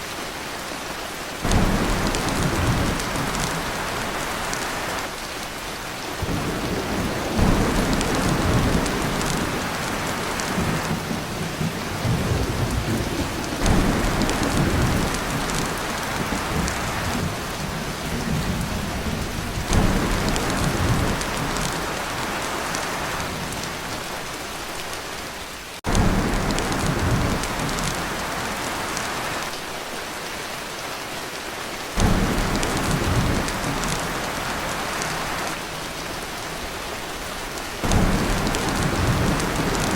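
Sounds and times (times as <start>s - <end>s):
heavy rain on a tin roof: 0.0s - 39.9s
thunder rumbling: 1.4s - 5.2s, 6.2s - 23.8s, 25.9s - 29.5s, 32.0s - 35.9s, 37.8s - 39.9s.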